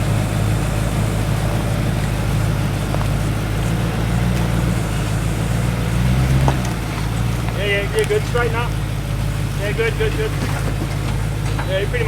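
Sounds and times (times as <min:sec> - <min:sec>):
engine running at low revs: 0:00.0 - 0:12.0
faint knocks: 0:09.6 - 0:12.0.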